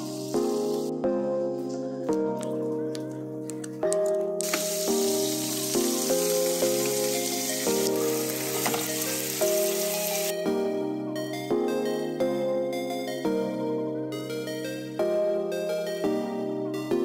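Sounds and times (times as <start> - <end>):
background music: 0.0 - 17.0
food sizzling in a hot pan: 4.4 - 10.3.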